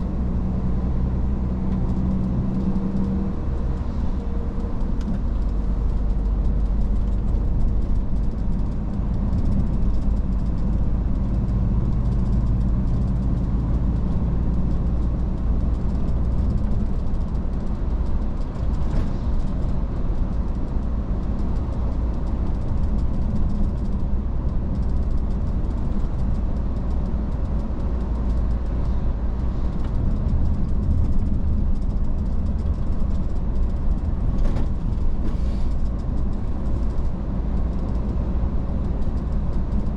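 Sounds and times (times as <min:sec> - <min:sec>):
road and tyre noise: 0:00.0 - 0:39.9
truck engine drone: 0:00.0 - 0:39.9.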